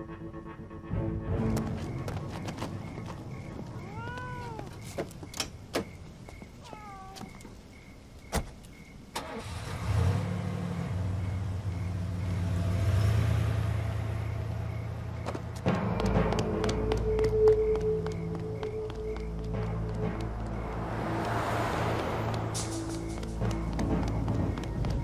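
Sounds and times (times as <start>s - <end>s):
car engine starting and running: 9.0s - 16.7s, 18.9s - 25.0s.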